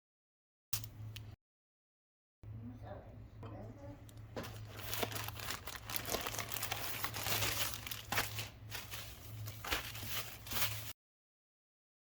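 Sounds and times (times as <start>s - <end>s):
plastic packaging crinkling: 4.4s - 11.0s.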